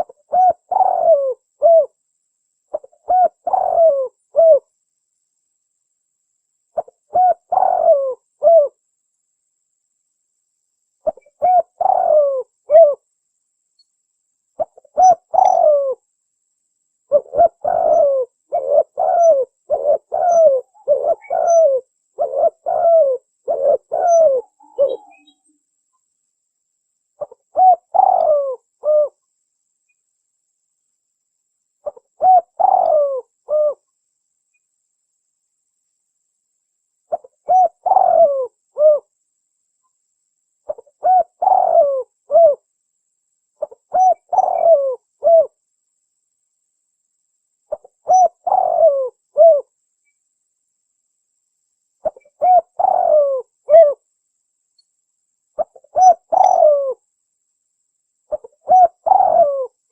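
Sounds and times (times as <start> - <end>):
dove cooing: 0.0 - 2.0, 2.7 - 4.7, 6.8 - 8.8, 11.0 - 13.0, 14.6 - 16.0, 17.1 - 25.4, 27.2 - 29.2, 31.8 - 33.8, 37.1 - 39.1, 40.7 - 42.6, 43.6 - 45.6, 47.7 - 49.7, 52.0 - 54.0, 55.6 - 57.0, 58.3 - 59.8.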